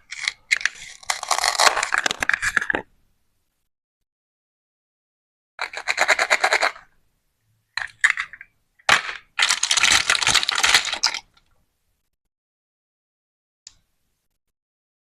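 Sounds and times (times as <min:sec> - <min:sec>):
plastic toy fruit crackling: 0:00.0 - 0:02.9, 0:08.9 - 0:11.5.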